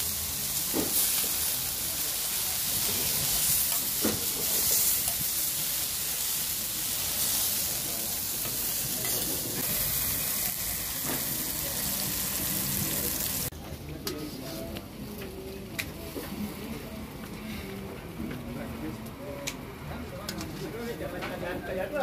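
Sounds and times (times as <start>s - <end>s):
tomato sizzling in oil: 0.0s - 13.5s.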